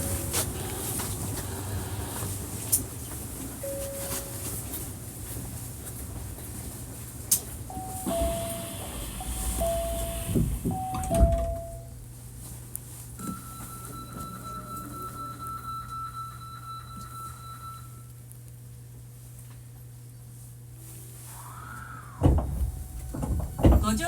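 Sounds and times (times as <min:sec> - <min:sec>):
steady low hum: 0:00.0 - 0:24.0
falling two-note door chime: 0:07.7 - 0:11.9
train doors thudding shut: 0:07.7 - 0:12.0, 0:22.1 - 0:24.0.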